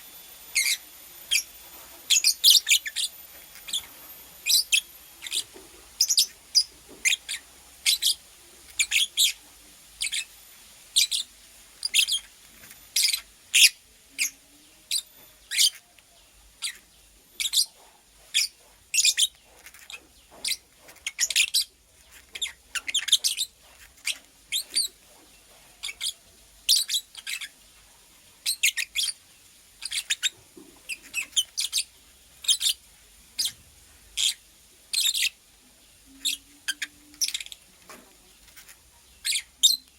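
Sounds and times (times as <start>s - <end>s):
lovebird chirping: 0.0s - 27.6s, 28.4s - 33.6s, 34.2s - 39.9s.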